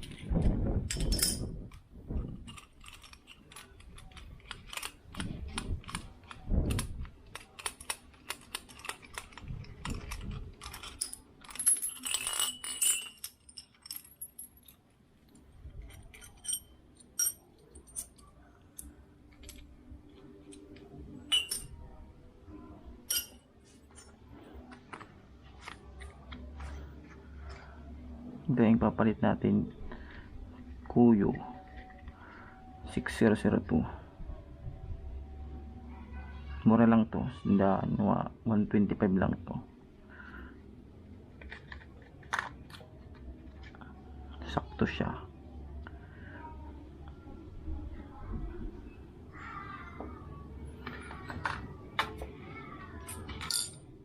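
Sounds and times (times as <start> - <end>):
metal tools clinking on workbench: 0.9 - 1.5, 7.4 - 14.8, 15.8 - 19.7, 20.5 - 21.8, 23.1 - 24.1, 53.1 - 53.9
metallic ringing: 21.2 - 21.7, 23.1 - 23.4.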